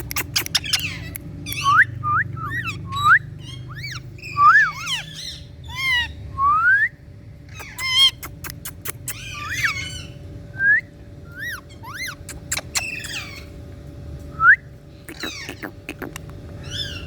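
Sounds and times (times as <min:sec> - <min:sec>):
parrot clicky calls: 0:00.0 - 0:01.8, 0:07.5 - 0:09.8, 0:11.4 - 0:13.5, 0:15.1 - 0:16.4
parrot whistles and chirps: 0:00.1 - 0:07.0, 0:07.6 - 0:13.5.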